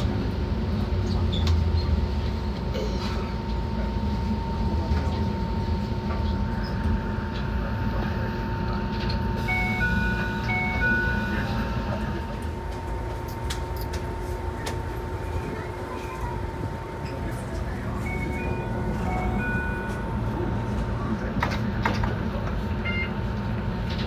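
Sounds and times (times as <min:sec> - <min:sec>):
electric train rumbling on rails: 0:00.0 - 0:24.0
constant whine: 0:08.8 - 0:22.6.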